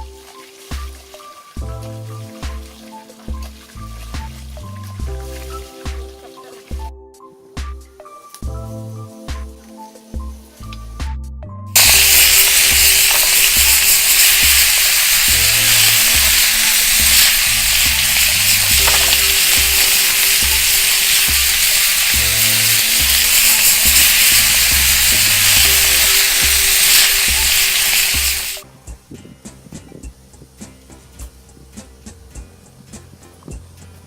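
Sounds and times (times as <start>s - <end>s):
kidneys sizzling on hot plate: 0.0s - 6.9s, 11.8s - 28.6s
background music: 0.0s - 34.0s.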